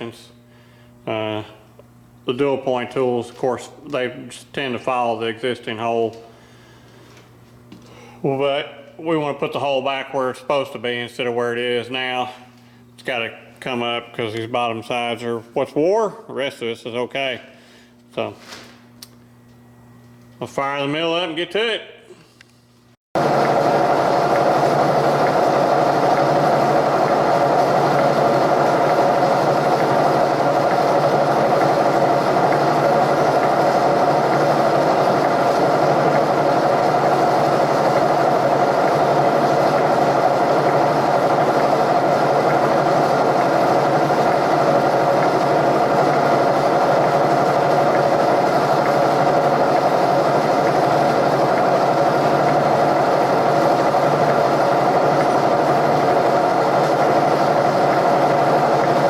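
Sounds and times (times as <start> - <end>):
milling machine running: 23.2 - 59.0.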